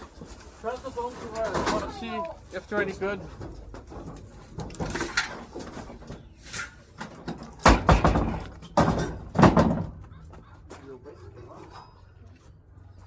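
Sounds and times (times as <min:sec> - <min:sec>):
objects knocking and clattering: 0:01.3 - 0:02.2, 0:03.0 - 0:10.4.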